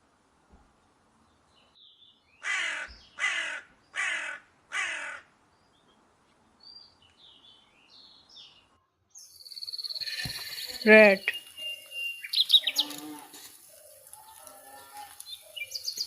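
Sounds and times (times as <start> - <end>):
crow cawing: 2.4 - 5.3.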